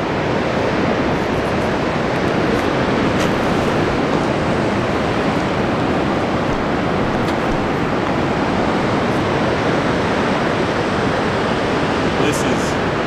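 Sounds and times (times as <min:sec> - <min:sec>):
ocean surf: 0:00.0 - 0:13.0
wind: 0:00.0 - 0:13.0.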